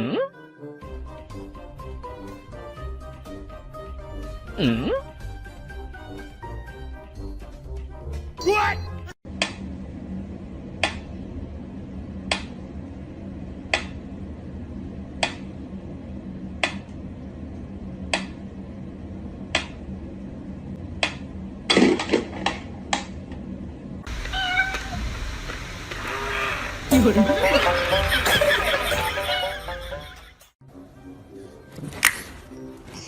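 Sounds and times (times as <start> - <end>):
low steady hum: 9.3 - 26.1.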